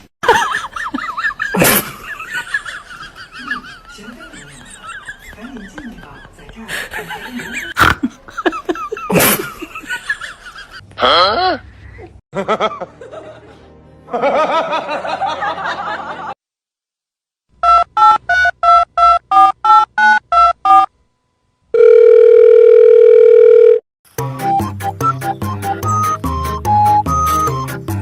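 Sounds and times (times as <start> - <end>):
music: 12.4 - 16.3, 24.1 - 28.0
steady phone tone: 21.7 - 23.8.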